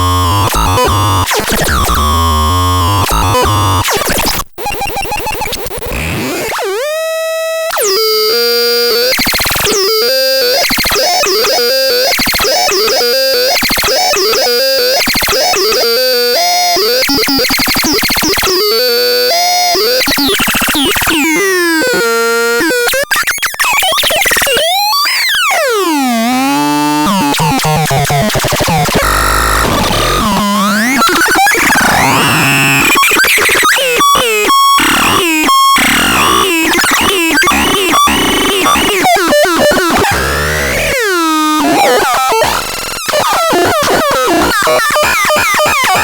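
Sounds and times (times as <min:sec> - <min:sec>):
buzzy synthesizer tones: 0:00.0 - 0:03.9, 0:25.5 - 0:45.9.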